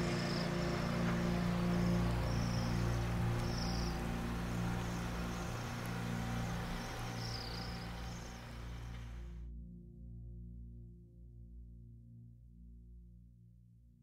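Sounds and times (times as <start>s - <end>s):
faint bird chirps: 0.0s - 9.3s
outdoor hiss: 0.0s - 9.4s
low steady drone: 0.0s - 10.8s.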